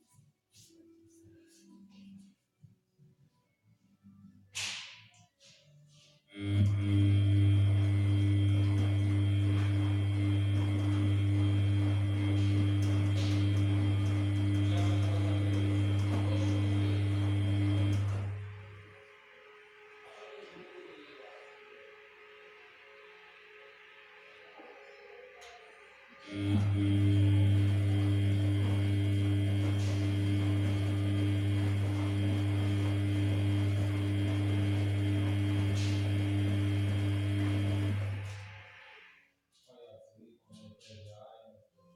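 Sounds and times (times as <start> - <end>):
washing machine electric hum: 6.3 - 20.7, 26.2 - 39.1.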